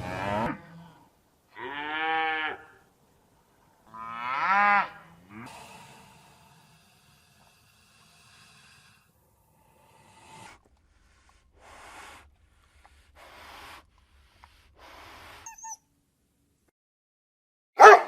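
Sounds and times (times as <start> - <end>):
faint animal breathing: 5.2 - 15.8.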